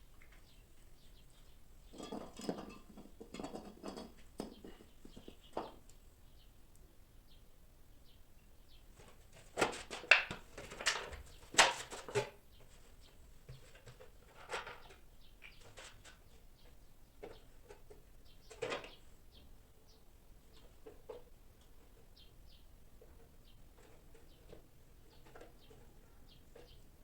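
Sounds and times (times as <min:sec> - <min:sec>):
knocks and clatters of handling: 0:01.4 - 0:06.0, 0:09.0 - 0:19.1, 0:20.5 - 0:22.2, 0:22.9 - 0:27.0.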